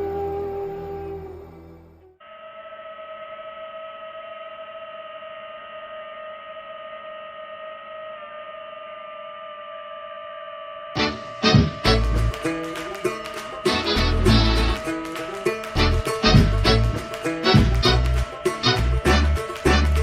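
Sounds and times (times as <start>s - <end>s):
steady hum with overtones: 0.0s - 20.0s
plucked guitar music: 11.0s - 20.0s.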